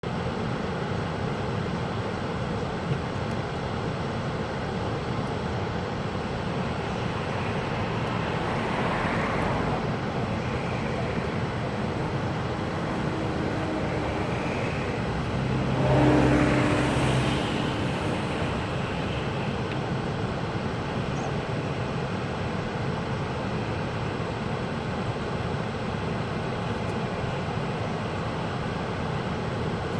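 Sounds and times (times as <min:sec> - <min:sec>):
waterfall roaring: 0:01.1 - 0:29.9
low hum: 0:06.3 - 0:20.0.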